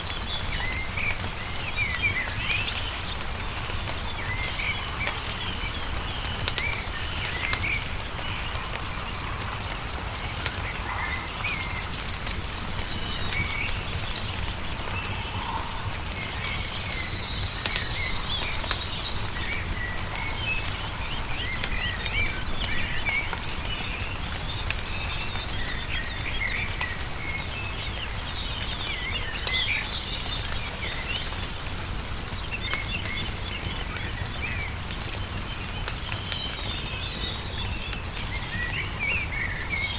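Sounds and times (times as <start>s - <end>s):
crackling wood fire: 0.0s - 39.9s
small birds singing: 0.0s - 39.9s
steady low rumble: 3.2s - 24.8s.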